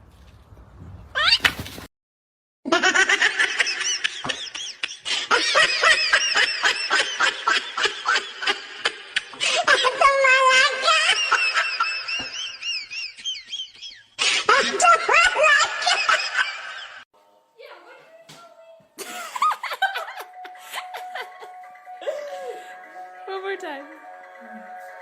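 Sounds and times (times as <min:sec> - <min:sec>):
high-pitched laughter: 0:02.7 - 0:17.0.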